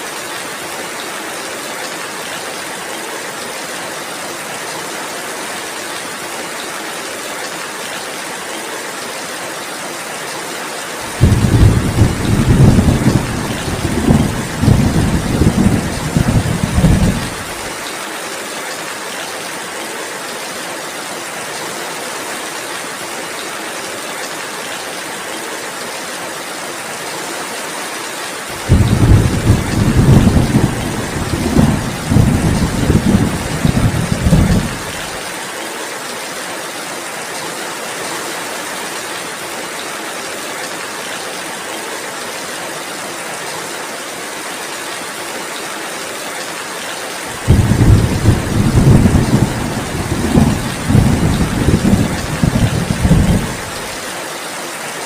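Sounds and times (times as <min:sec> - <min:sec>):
steady rain hissing: 0:00.0 - 0:55.0
rolling rumble of thunder: 0:11.1 - 0:17.7, 0:28.6 - 0:35.2, 0:47.4 - 0:53.8.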